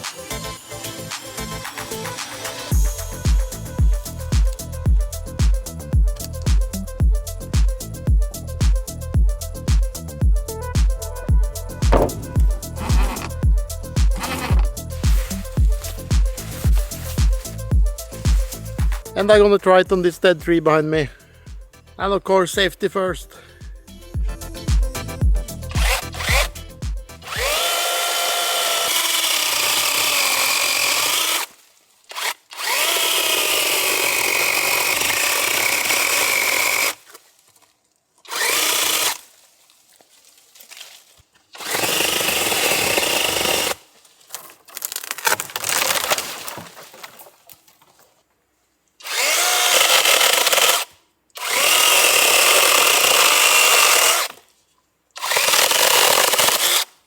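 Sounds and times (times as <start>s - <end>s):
chainsaw cutting wood: 0.0s - 4.7s, 11.8s - 19.2s, 25.7s - 37.2s, 38.2s - 39.4s, 41.5s - 43.9s, 49.0s - 54.4s, 55.2s - 57.0s.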